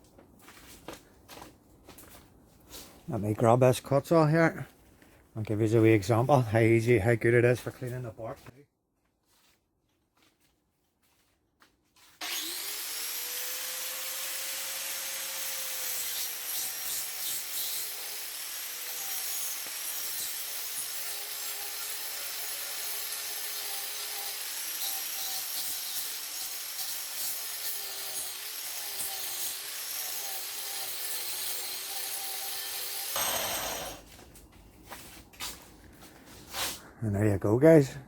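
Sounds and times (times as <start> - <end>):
angle grinder motor whine: 12.2 - 15.2, 33.1 - 34.1
grinding disc rasping wood: 12.2 - 34.1.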